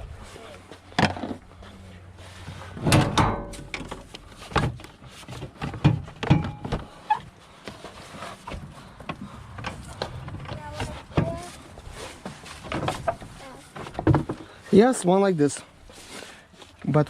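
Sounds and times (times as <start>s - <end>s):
knocks and clunks: 2.7s - 7.0s, 8.4s - 11.5s, 12.2s - 14.6s.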